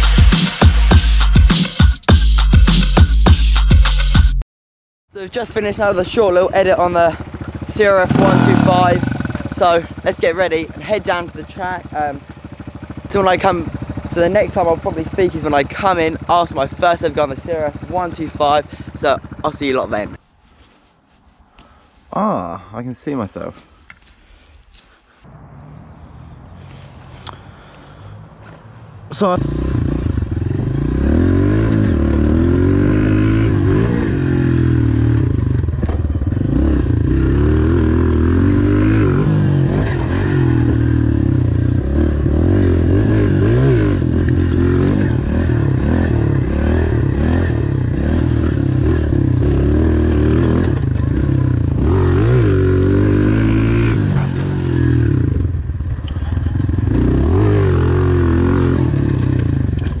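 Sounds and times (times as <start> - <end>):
motorbike engine revving: 6.4 - 20.1, 29.1 - 60.0.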